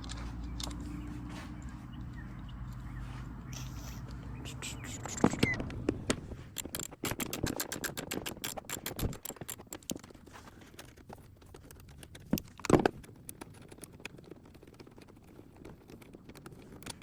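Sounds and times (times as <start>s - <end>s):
plastic parts clicking and rattling: 5.0s - 17.0s.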